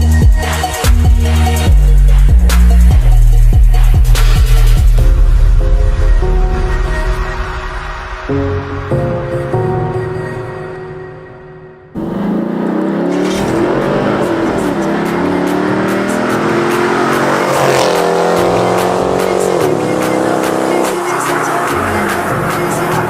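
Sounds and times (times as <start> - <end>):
car engine accelerating hard: 12.0 - 23.0.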